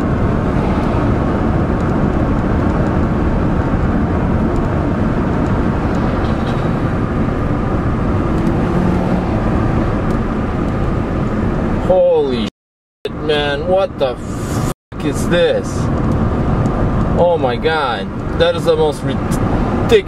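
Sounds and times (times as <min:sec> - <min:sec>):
vehicle engine running: 0:00.0 - 0:11.8
road noise: 0:00.0 - 0:12.5, 0:13.1 - 0:20.0.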